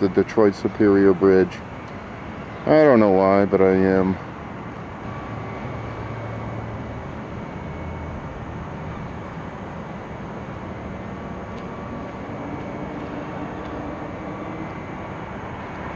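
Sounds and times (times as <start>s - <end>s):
droning hum: 0.0s - 15.9s
low engine rumble: 0.0s - 15.9s.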